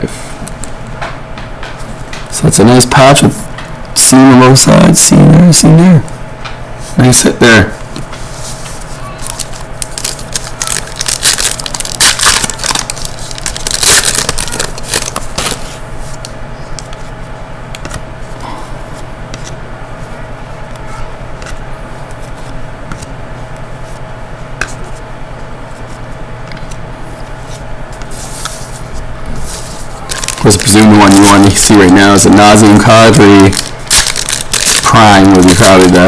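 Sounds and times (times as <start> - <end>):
background hum: 0.0 - 36.0
packaging crinkling and rustling: 8.5 - 16.4, 28.2 - 36.0.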